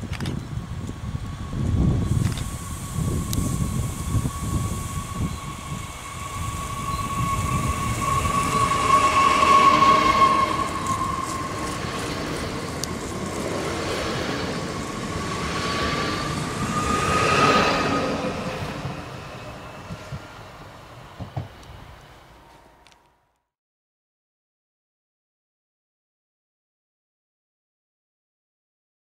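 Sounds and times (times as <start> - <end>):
steady high whine: 0.1 - 23.2
electric train passing: 0.3 - 23.3.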